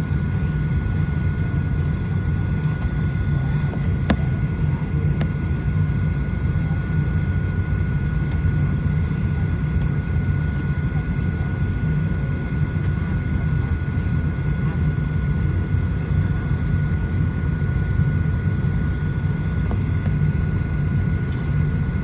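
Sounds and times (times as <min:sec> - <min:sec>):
aircraft cabin drone: 0:00.0 - 0:22.0.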